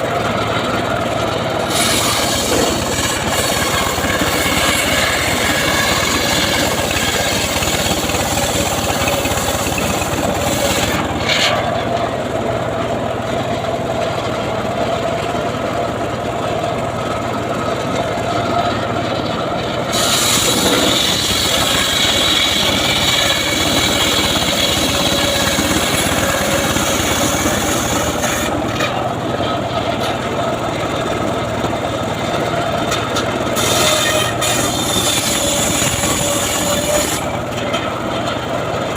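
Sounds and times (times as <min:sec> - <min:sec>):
band sawmill whining: 0:00.0 - 0:38.9
saw hissing through log: 0:01.6 - 0:11.2, 0:19.9 - 0:28.6, 0:33.6 - 0:37.5.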